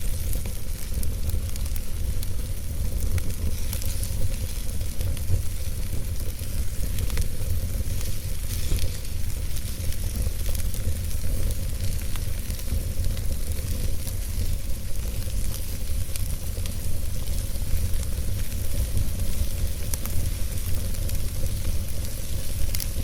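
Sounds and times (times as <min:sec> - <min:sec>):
wood logs burning: 0:00.0 - 0:23.0.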